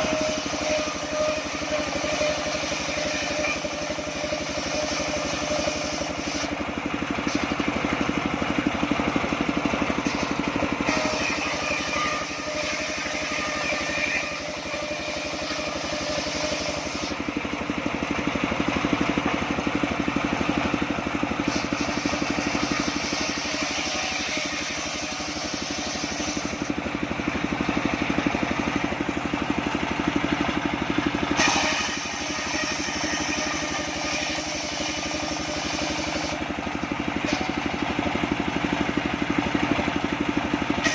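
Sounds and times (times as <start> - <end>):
saw blade hissing through timber: 0.0 - 7.7, 9.9 - 17.3, 21.3 - 26.8, 31.3 - 36.5
engine running: 0.0 - 40.9.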